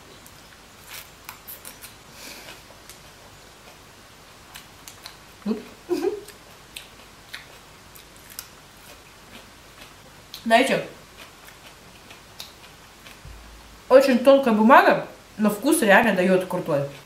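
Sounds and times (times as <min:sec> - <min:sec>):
crisp chewing crackles: 0:00.1 - 0:13.2.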